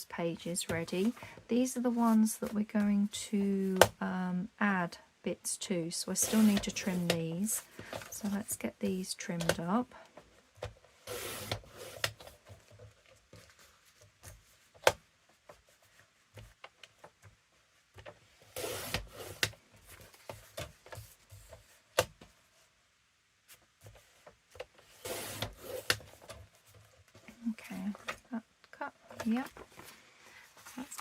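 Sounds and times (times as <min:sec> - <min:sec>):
paper trimmer blade cutting: 0:25.0 - 0:26.0.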